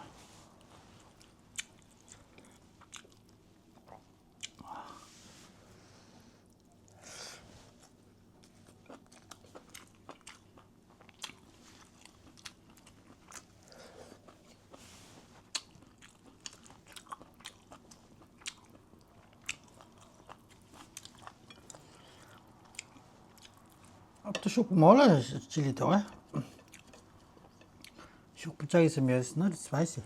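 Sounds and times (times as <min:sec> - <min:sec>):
person chewing crunchy food: 0:00.5 - 0:04.8, 0:07.7 - 0:24.2, 0:26.3 - 0:28.0.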